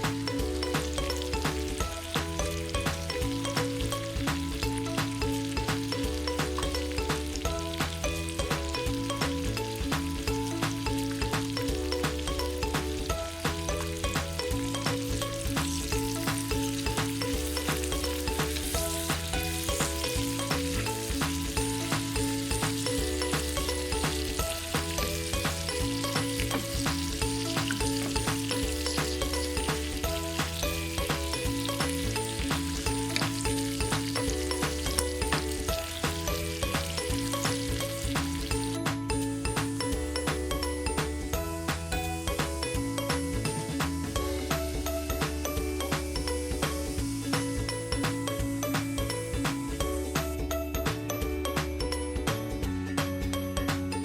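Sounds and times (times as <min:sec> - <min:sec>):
food sizzling in a pan: 0:00.0 - 0:41.1
background music with bass line: 0:00.0 - 0:54.0.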